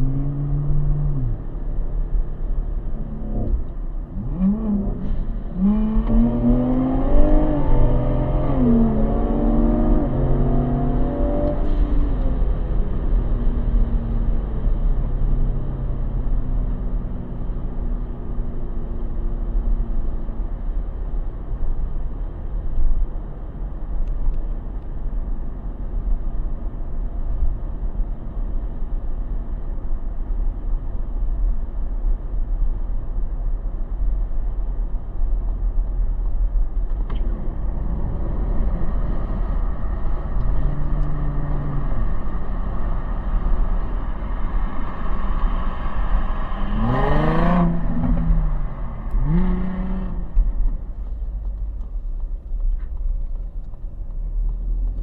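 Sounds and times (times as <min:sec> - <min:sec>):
car engine accelerating through gears: 0:00.0 - 0:01.9, 0:02.7 - 0:20.8, 0:35.4 - 0:55.0.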